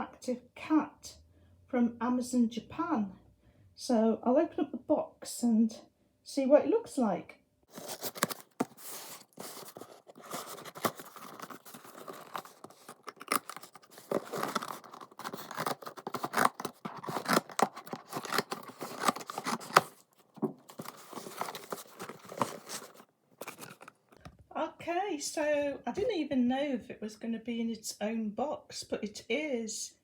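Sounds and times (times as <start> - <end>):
cardboard flaps scraping: 7.7 - 24.2
packing tape tearing: 7.7 - 24.3.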